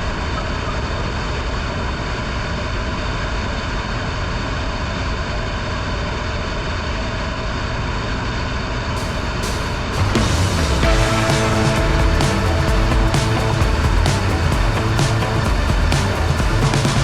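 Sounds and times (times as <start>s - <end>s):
motorcycle engine: 9.0s - 17.0s
road noise: 9.0s - 17.0s.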